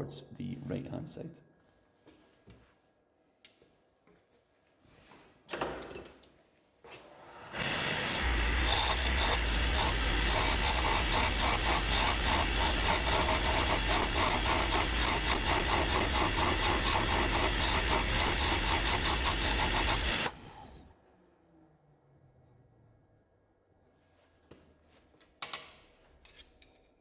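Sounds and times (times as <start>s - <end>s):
wood lathe humming: 7.4s - 20.9s
chisel cutting spinning wood: 7.5s - 20.9s.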